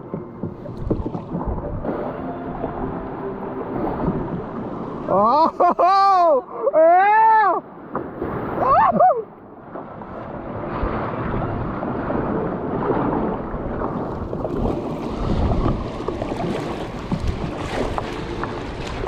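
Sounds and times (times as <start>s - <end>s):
water moving around kayak: 0.0s - 6.8s, 7.6s - 19.0s
wind buffeting microphone: 10.0s - 19.0s.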